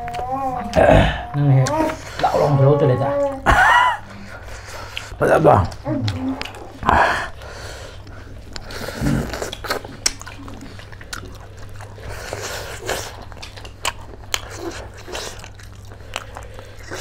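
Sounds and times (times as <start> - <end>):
chewing and crunching food: 4.0 - 17.0
mouth smacks and clicks: 8.0 - 11.3.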